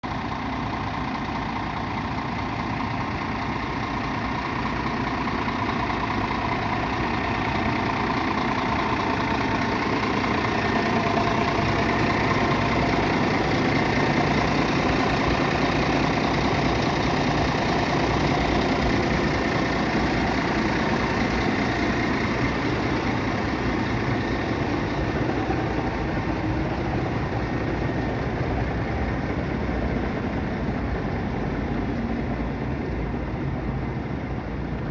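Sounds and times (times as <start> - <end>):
diesel truck engine idling: 0.0 - 34.9.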